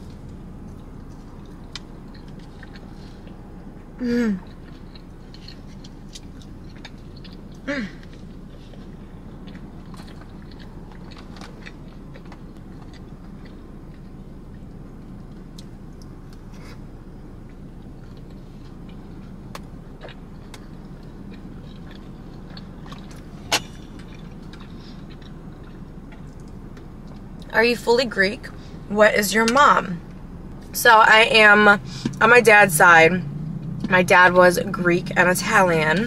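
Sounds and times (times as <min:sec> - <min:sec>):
chewing and eating: 0:00.0 - 0:27.5, 0:33.2 - 0:34.0
steady low hum: 0:00.0 - 0:36.0.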